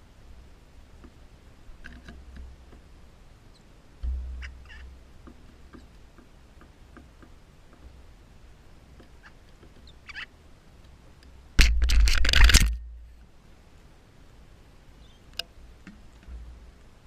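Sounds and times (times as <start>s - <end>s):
birds chirping: 0.0s - 11.6s, 14.8s - 17.0s.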